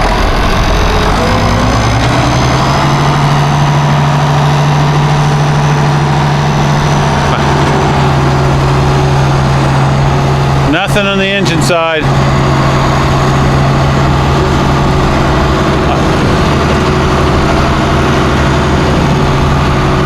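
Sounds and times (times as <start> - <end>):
tractor engine running under load: 0.0 - 20.0.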